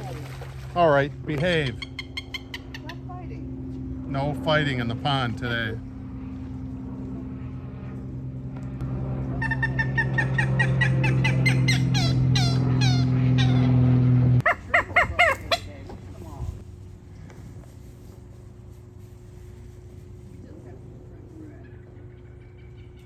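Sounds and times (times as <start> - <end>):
low motor hum: 0.0 - 23.0
pond bird squawking: 1.6 - 3.1, 9.4 - 13.8, 14.4 - 15.8.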